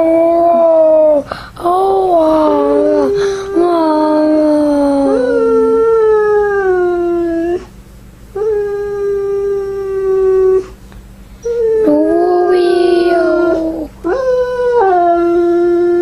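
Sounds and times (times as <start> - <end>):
second lower howl: 8.4 - 10.8, 11.4 - 16.0
husky howling: 11.4 - 16.0.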